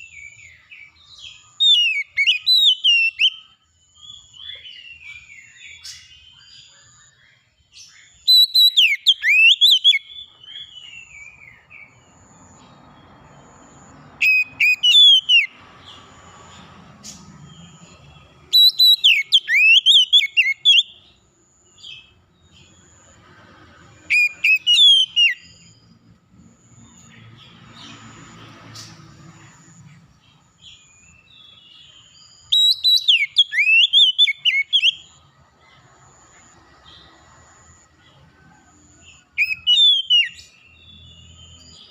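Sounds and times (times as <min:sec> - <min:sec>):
songbird singing whistled phrases: 0:00.0 - 0:12.0, 0:14.2 - 0:15.6, 0:18.4 - 0:21.0, 0:24.1 - 0:25.8, 0:30.7 - 0:35.2, 0:39.4 - 0:41.9.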